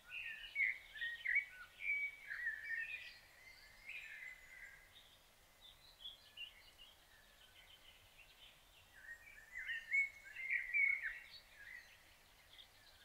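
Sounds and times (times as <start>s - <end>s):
faint outdoor background noise: 0.0s - 13.0s
songbird warbling: 9.0s - 12.0s.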